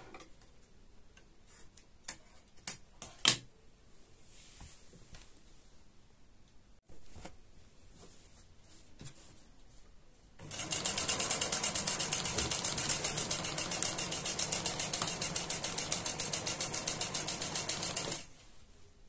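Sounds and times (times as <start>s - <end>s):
sewing machine stitching: 10.4s - 18.3s.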